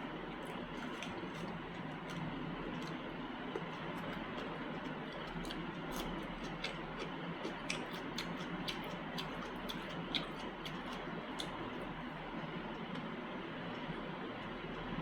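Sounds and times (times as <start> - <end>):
chewing mouth clicks and smacks: 0.4 - 12.0.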